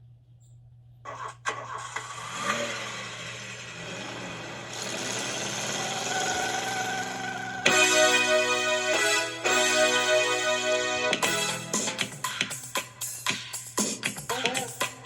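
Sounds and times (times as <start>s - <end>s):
car engine starting and revving: 1.5s - 8.2s.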